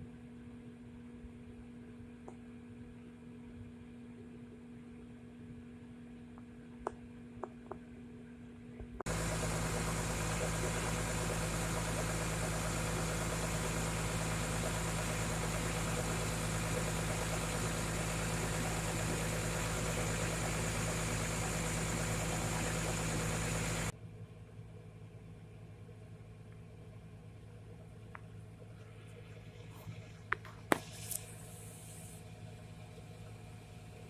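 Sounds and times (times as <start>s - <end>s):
diesel engine droning with hiss: 9.1s - 34.0s.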